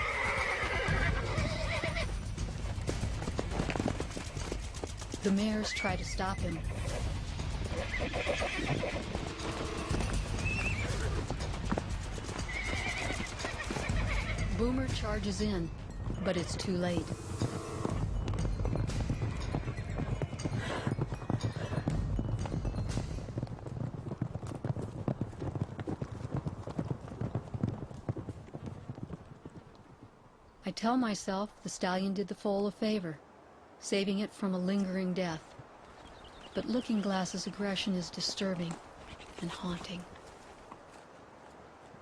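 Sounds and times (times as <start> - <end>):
horses squealing: 0.0 - 24.6
hooves thudding on ground: 0.0 - 30.2, 34.6 - 42.0.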